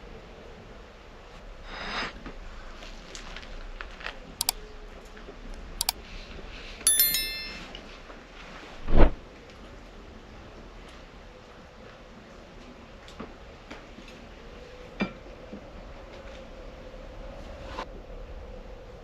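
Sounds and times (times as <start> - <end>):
metal clink: 6.9 - 7.8.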